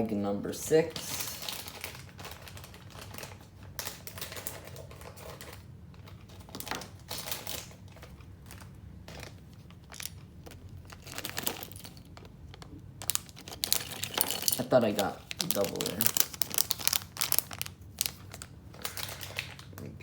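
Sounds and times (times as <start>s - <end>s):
packet rustling: 1.0s - 20.0s
small plastic pieces clicking: 9.9s - 18.2s.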